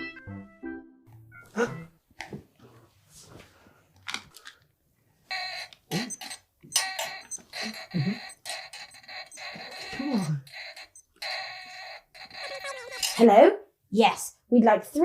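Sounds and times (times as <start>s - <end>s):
telephone ringing: 5.3s - 13.2s.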